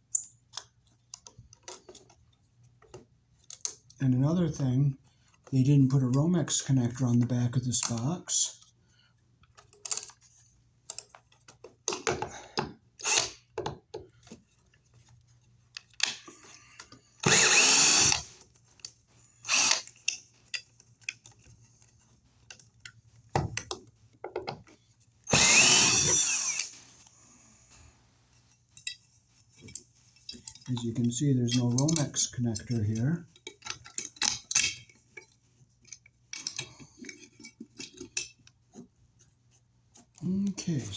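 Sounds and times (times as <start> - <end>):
power drill running: 13.0 - 13.3, 17.2 - 18.4, 19.4 - 19.9, 25.3 - 26.8
handling clicks and knocks: 19.9 - 24.8, 28.6 - 38.9.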